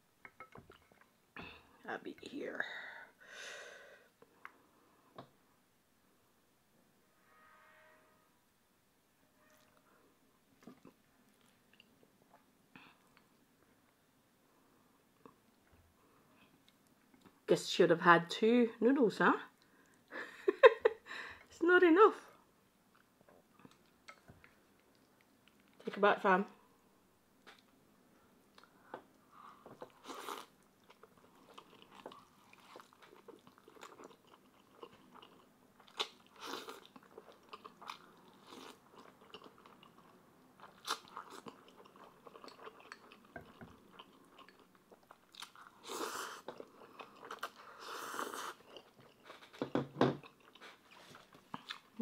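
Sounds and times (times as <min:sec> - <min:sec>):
person chewing noodles: 0:22.9 - 0:25.8, 0:29.7 - 0:49.6, 0:50.2 - 0:52.0.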